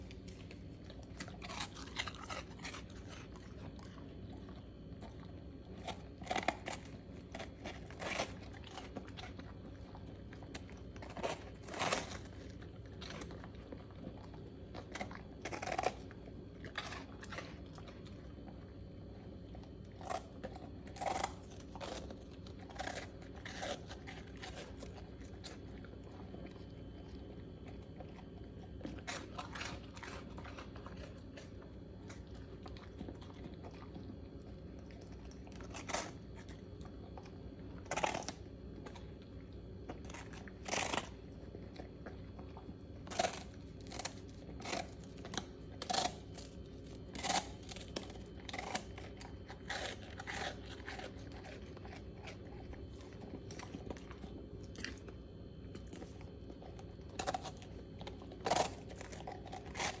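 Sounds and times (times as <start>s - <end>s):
dog crunching treats: 0.0s - 60.0s.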